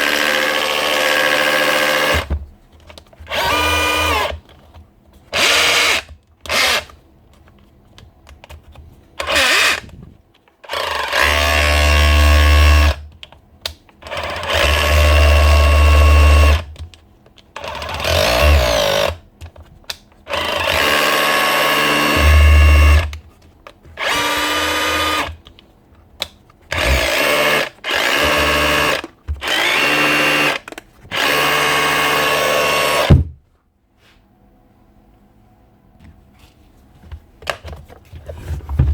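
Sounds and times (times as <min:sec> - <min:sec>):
hammer drill bursts: 0:26.7 - 0:33.2.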